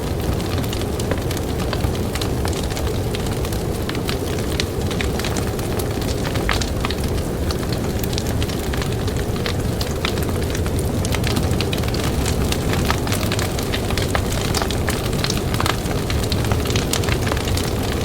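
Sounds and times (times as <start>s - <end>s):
blizzard wind rumble: 0.0s - 18.0s
campfire crackling and popping: 0.0s - 18.0s.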